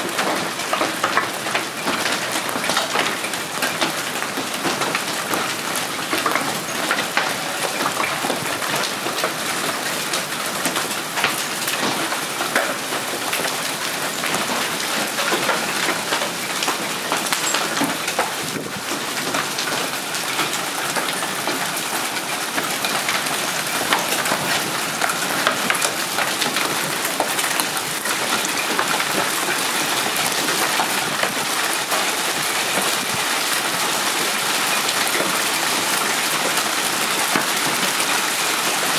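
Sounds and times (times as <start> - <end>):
hailstones clattering: 0.0 - 38.9
rain pattering: 0.0 - 38.9.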